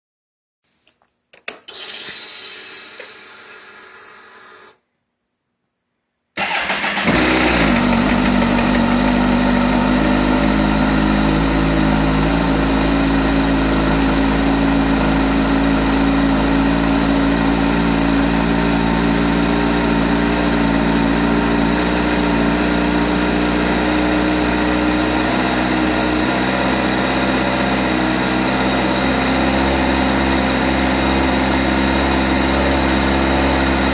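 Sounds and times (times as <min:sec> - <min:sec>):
clicks and starter whir: 0:00.8 - 0:04.8, 0:06.4 - 0:09.1.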